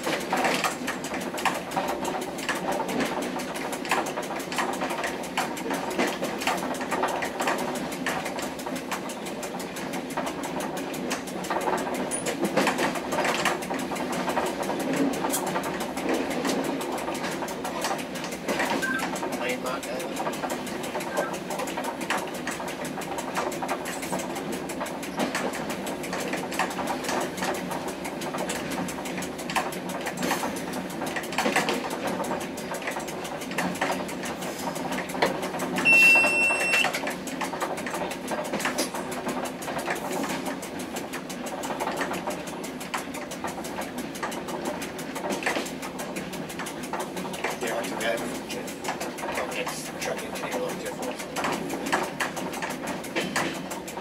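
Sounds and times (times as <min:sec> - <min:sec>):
train cab hum and rattling: 0:00.0 - 0:54.0
short high-pitched beep: 0:18.8 - 0:19.1, 0:35.8 - 0:36.9.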